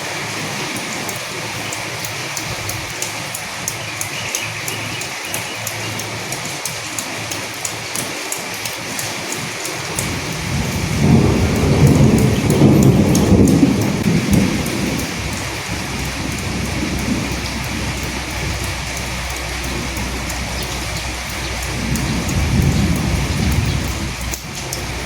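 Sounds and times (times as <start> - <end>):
steady rain with drip taps: 0.0 - 25.0
low roll of thunder: 10.0 - 25.0.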